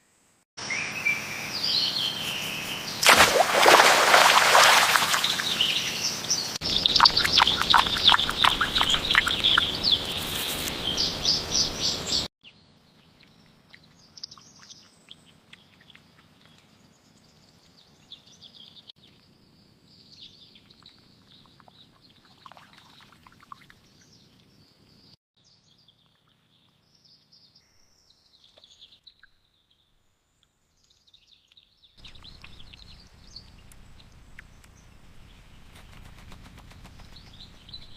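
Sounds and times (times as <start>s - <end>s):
birds chirping: 0.6s - 18.9s, 30.8s - 37.9s.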